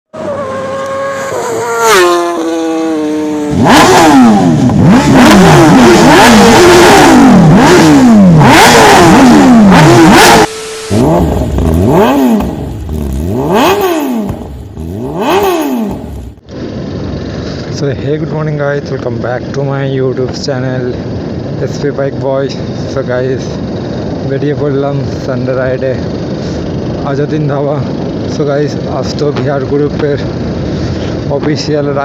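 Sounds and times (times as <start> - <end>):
motorcycle engines revving: 0.2 - 17.7.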